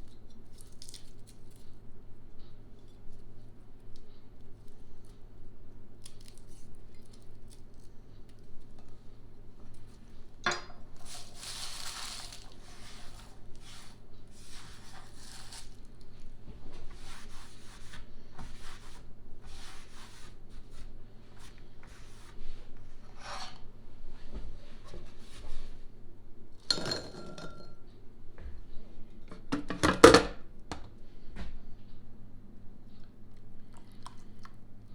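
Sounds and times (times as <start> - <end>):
rubbing and scraping: 11.0 - 15.8.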